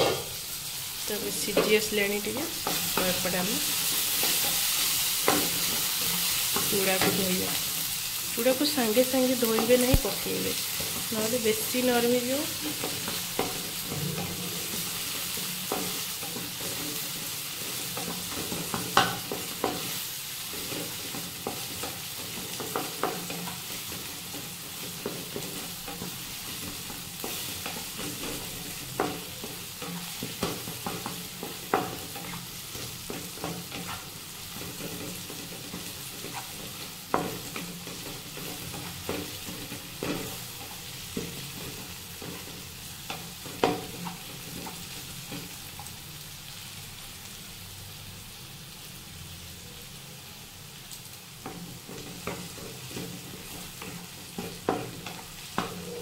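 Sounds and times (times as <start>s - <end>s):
vegetables sizzling in oil: 0.0s - 56.0s.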